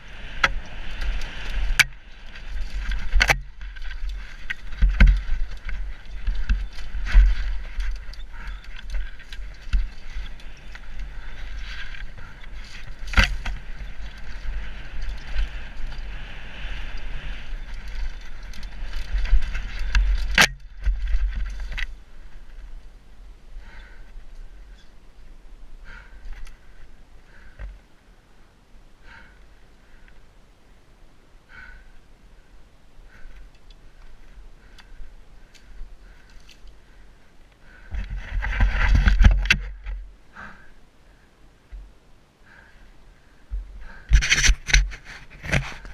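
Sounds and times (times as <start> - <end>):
bike tyre and frame rattle: 0.0 - 22.9, 23.6 - 25.0, 25.8 - 27.9, 33.1 - 40.8, 42.5 - 45.9
wind rumble on microphone: 0.0 - 27.7, 37.7 - 40.2
bike knocking over bumps: 2.6 - 15.4.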